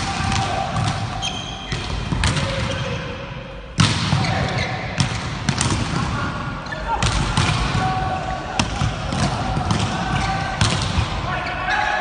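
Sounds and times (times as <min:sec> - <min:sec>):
volleyball smacks with echo: 0:00.0 - 0:02.8, 0:03.7 - 0:06.1, 0:07.0 - 0:11.2
shoes squeaking on court: 0:01.1 - 0:02.0.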